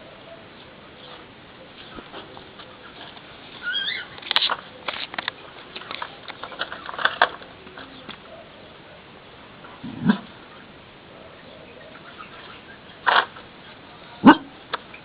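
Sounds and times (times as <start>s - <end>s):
high-pitched pet call: 3.6s - 4.1s.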